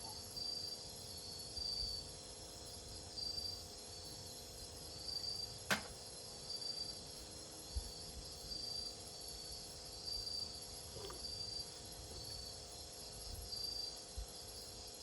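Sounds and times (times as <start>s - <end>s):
insects trilling: 0.0s - 15.0s
steady insect drone: 0.0s - 15.0s
sharp click: 5.7s - 6.0s.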